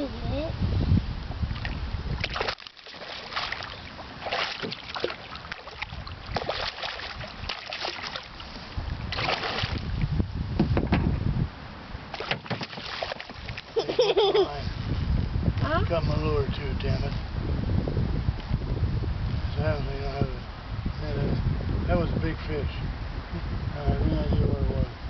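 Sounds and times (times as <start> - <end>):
water splashing around a canoe: 1.4 - 10.2, 12.1 - 13.8
knocks and clatter in boat: 4.3 - 8.2, 10.6 - 11.2, 12.1 - 13.6.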